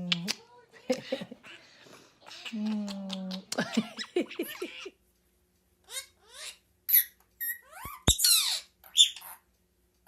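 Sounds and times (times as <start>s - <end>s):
bird squeaky calls and chirps: 5.9s - 9.5s.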